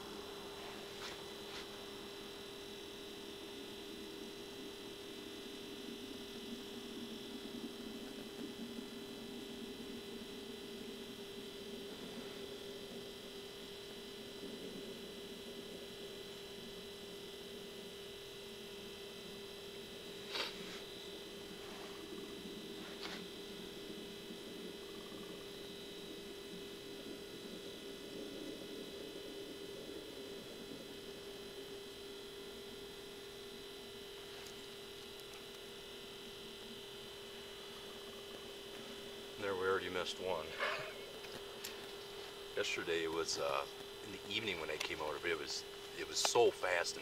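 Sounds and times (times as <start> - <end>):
faint electrical hum: 0.0 - 47.0
faint ticks: 33.7 - 35.7.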